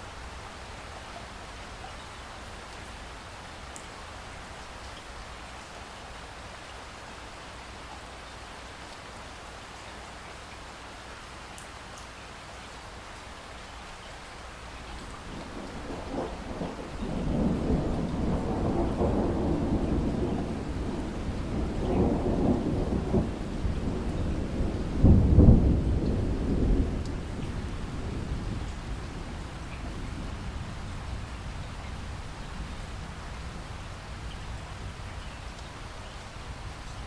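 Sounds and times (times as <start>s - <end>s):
steady rain falling: 0.0s - 37.0s
rolling thunder: 15.2s - 35.0s.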